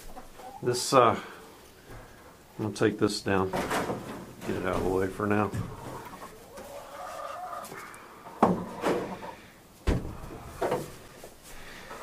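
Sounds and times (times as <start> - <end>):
sharp knocks and bumps: 9.8 - 10.9.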